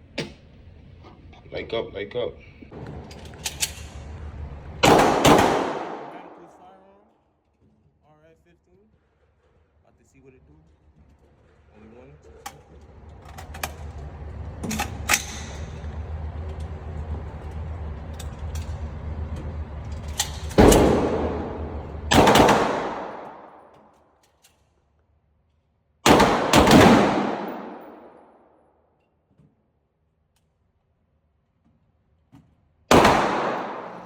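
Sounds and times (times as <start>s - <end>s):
steady background hum: 0.0s - 28.6s, 30.4s - 34.0s
rifle shots with echoing tail: 4.8s - 6.6s, 20.6s - 23.6s, 26.0s - 28.3s, 32.9s - 34.0s.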